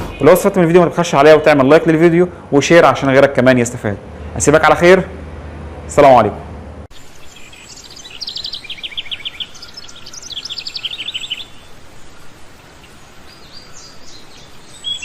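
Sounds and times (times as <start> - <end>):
small birds chirping: 0.0 - 2.2, 6.9 - 15.0.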